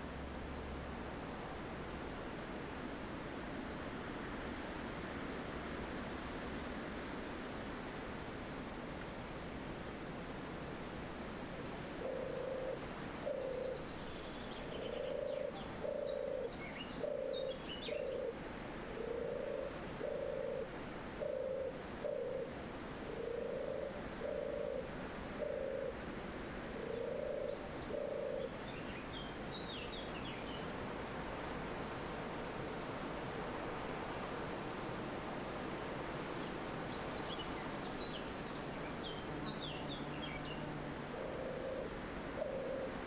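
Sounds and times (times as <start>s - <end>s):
wind rushing through trees: 0.0s - 43.0s
dove cooing softly: 11.9s - 14.0s, 14.6s - 29.0s, 38.6s - 43.0s.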